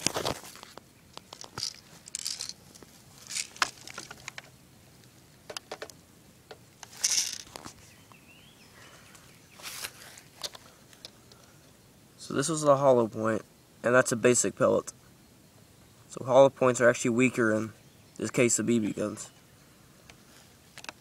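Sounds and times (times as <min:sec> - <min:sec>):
rustling crinkling: 0:00.0 - 0:04.5.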